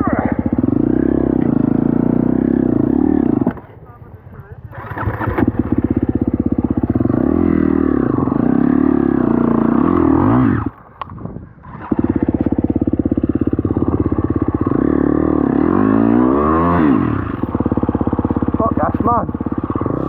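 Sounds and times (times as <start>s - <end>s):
dirt bike engine revving: 0.0s - 3.6s, 4.6s - 10.8s, 11.6s - 20.0s.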